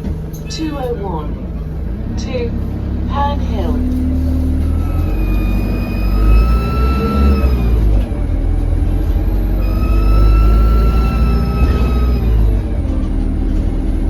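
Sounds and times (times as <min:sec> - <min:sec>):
bus diesel engine rumble: 0:00.0 - 0:14.0
high turbo whistle: 0:04.4 - 0:08.0, 0:09.2 - 0:12.6.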